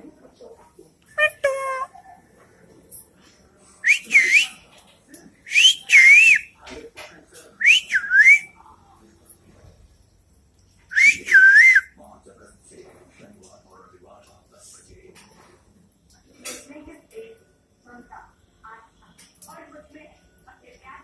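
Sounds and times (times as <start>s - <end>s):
parrot whistling: 3.8s - 4.5s, 5.5s - 6.5s, 7.6s - 8.5s, 10.9s - 11.9s.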